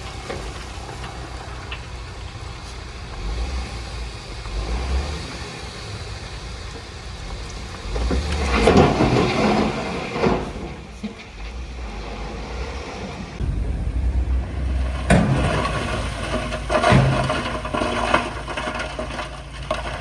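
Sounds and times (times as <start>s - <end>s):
rattling and scraping: 7.9s - 20.0s
earthmoving machinery rumbling: 10.2s - 20.0s.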